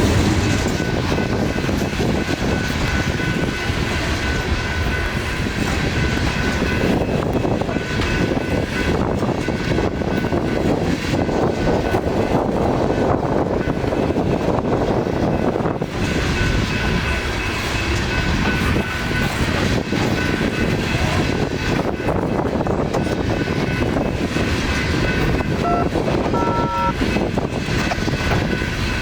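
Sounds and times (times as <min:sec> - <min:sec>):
freight train cars rumbling: 0:00.0 - 0:29.0.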